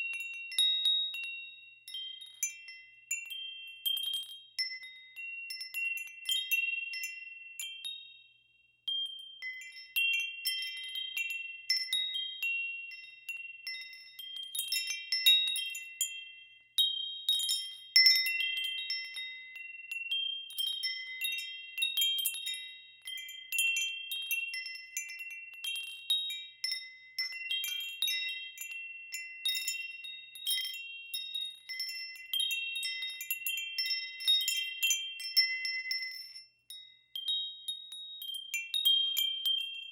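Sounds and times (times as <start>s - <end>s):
wind chimes ringing: 0.0s - 8.2s, 8.9s - 39.9s.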